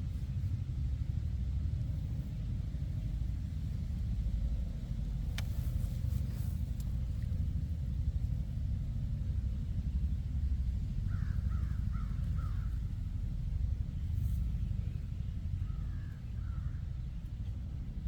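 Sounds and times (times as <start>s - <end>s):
faint sharp click: 5.3s - 6.9s.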